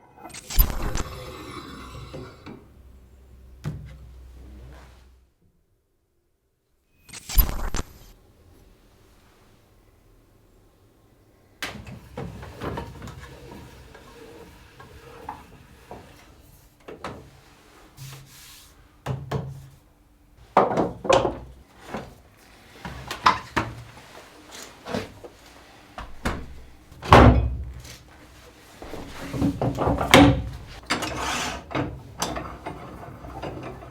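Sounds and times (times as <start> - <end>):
rubbing scrapes: 30.6 - 31.7.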